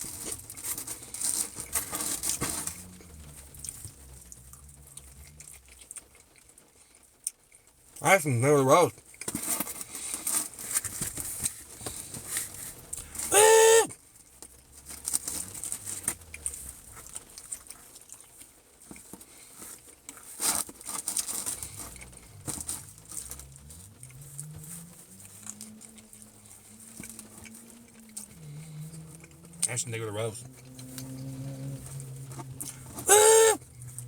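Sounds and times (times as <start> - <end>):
small clicks and crinkles: 0.0 - 8.0, 8.9 - 13.3, 14.0 - 34.0
rain pattering: 0.0 - 9.2, 14.0 - 19.5, 20.8 - 34.0
loud pitched tone: 13.3 - 13.9, 33.1 - 33.6.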